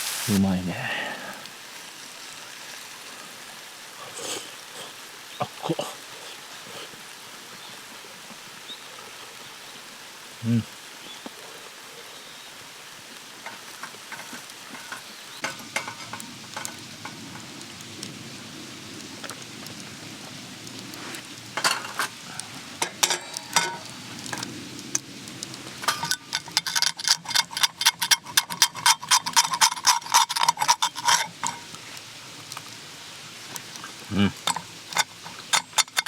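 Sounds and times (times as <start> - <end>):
faint sizzling: 0.0 - 36.0
metal utensil scraping on griddle: 13.4 - 17.6, 20.9 - 25.0, 25.7 - 32.0, 34.4 - 36.0.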